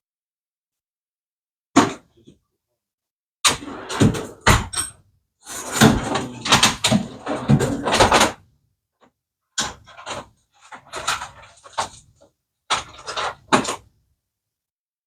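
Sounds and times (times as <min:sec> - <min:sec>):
objects clattering and knocking: 0:03.5 - 0:08.4, 0:09.6 - 0:13.9.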